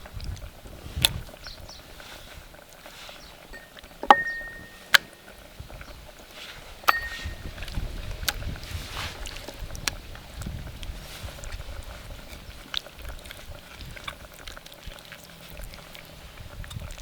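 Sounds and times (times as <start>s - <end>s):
low wind rumble on microphone: 0.0s - 4.8s, 5.4s - 17.0s
metal utensil clinking on cookware: 3.6s - 5.3s, 6.9s - 7.6s.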